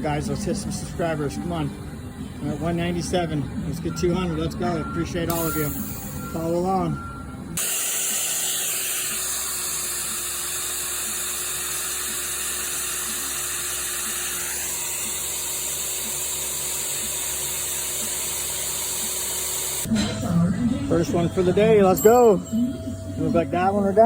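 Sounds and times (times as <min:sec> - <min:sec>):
power drill boring into steel: 0:07.6 - 0:19.9.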